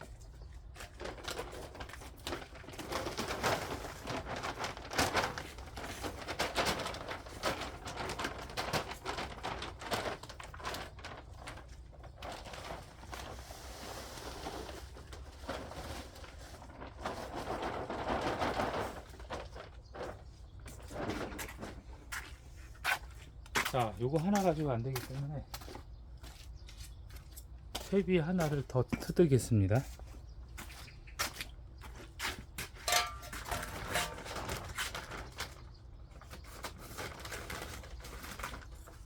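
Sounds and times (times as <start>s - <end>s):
compost rustling from a sack: 0.6s - 23.1s, 32.1s - 39.0s.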